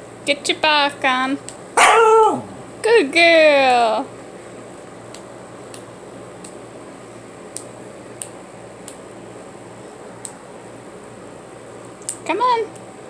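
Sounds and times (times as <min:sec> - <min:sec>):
finger snaps: 0:05.1 - 0:06.6, 0:07.5 - 0:09.0, 0:12.0 - 0:12.9.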